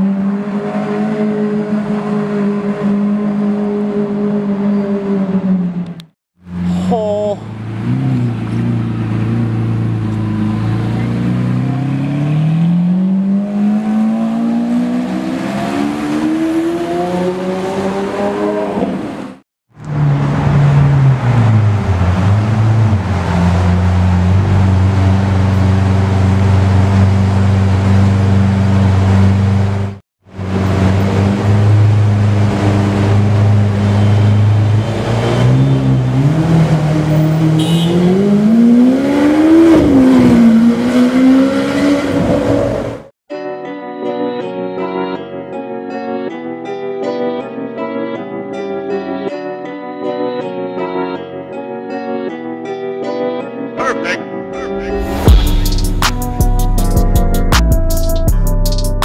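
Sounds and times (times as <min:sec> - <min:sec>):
sports car engine revving: 0:07.6 - 0:19.2, 0:30.4 - 0:43.1.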